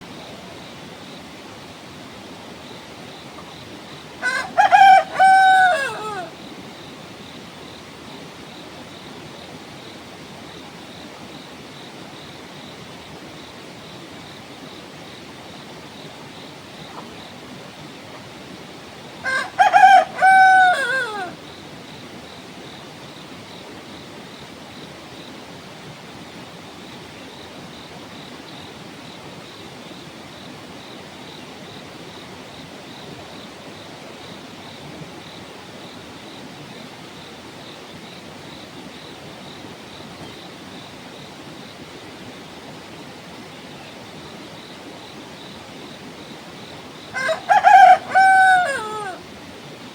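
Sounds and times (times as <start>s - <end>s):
rooster crowing: 4.2s - 6.4s, 19.2s - 21.4s, 47.2s - 49.2s.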